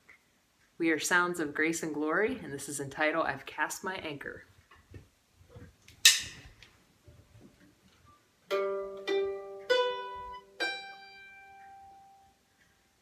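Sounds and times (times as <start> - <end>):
sharp click: 6.0 - 6.6.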